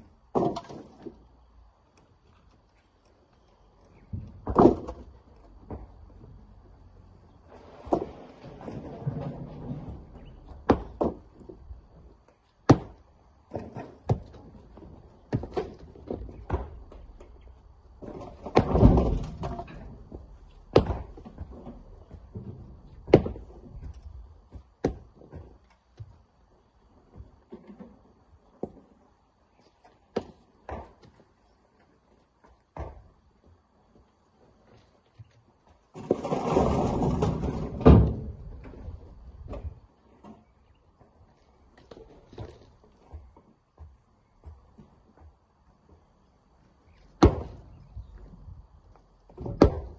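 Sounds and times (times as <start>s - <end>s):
rocks tumbling and clattering: 0.0s - 49.9s
rock clatter: 7.6s - 12.0s, 15.3s - 25.4s, 35.9s - 39.8s
heavy rock knocks: 20.7s - 21.5s.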